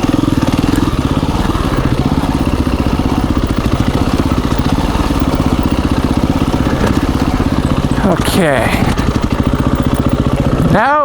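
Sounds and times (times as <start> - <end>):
dirt bike engine chugging: 0.0 - 11.0.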